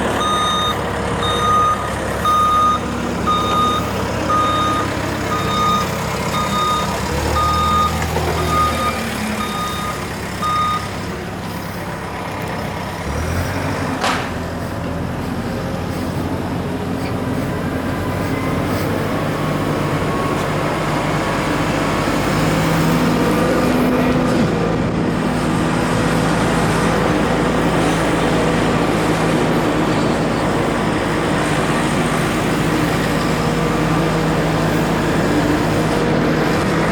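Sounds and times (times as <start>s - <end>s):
truck reverse alarm beeping: 0.0s - 11.0s, 17.8s - 23.0s, 26.7s - 36.0s
truck engine running: 0.0s - 36.9s.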